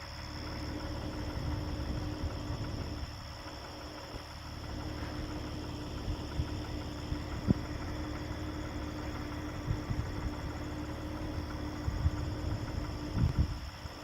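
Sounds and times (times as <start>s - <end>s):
crickets chirring: 0.0s - 14.0s
vehicle idling: 0.0s - 14.0s.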